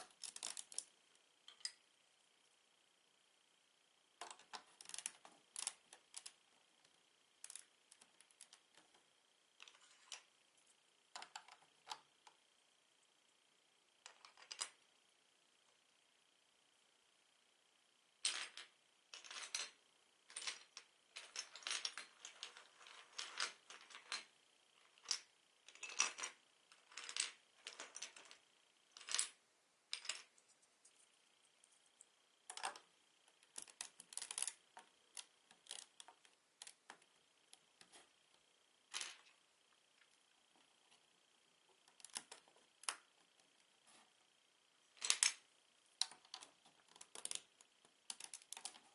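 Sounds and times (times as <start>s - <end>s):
plastic bricks clicking and rattling: 0.0s - 0.9s, 4.2s - 6.4s, 32.5s - 32.8s, 33.4s - 37.0s, 41.9s - 43.1s, 45.0s - 45.4s, 46.0s - 47.5s, 48.1s - 48.9s.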